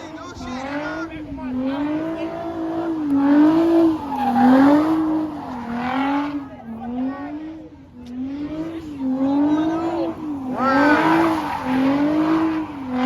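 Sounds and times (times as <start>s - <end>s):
car engine revving: 0.0s - 13.0s
car tires squealing: 1.6s - 7.0s, 8.3s - 13.0s.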